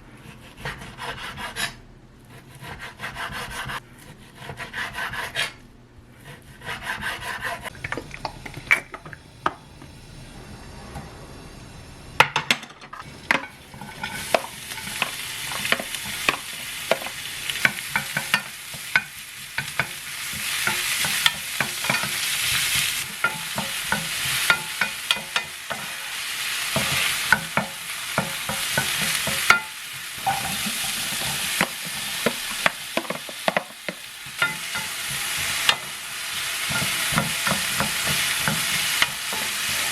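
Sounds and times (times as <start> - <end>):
utensil scraping a pan: 0.2 - 5.6, 6.2 - 9.1, 13.0 - 39.9
food sizzling in a pan: 13.0 - 39.9.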